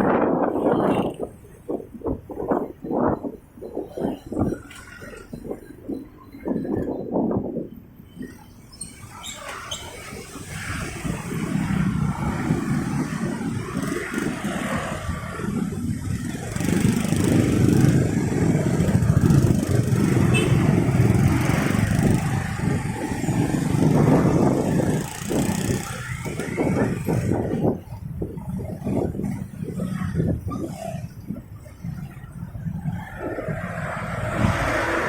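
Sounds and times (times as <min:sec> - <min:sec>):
traffic rumble: 0:00.0 - 0:35.0
motorcycle engine running: 0:11.9 - 0:27.8.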